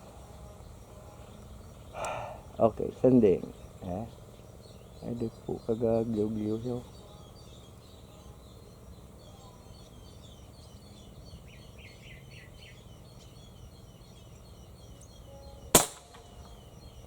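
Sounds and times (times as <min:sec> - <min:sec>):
birds chirping: 0:00.0 - 0:17.0
air rifle shot: 0:15.7 - 0:16.5.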